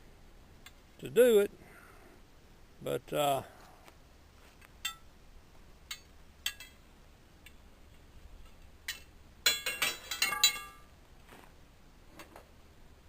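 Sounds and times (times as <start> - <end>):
metal slats clinking: 5.9 - 6.8, 8.4 - 10.9.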